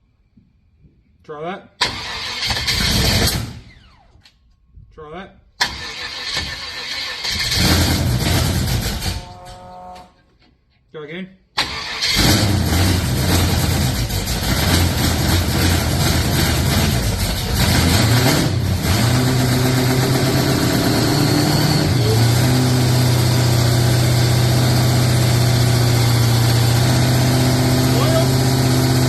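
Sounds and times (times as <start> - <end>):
car engine running: 12.2 - 29.0.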